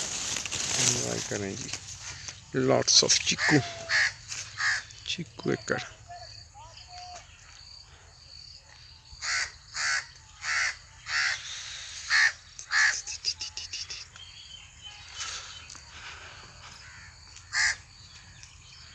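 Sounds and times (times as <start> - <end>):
bird calling: 0.0 - 8.0, 9.1 - 18.9
faint ticks: 12.5 - 14.3.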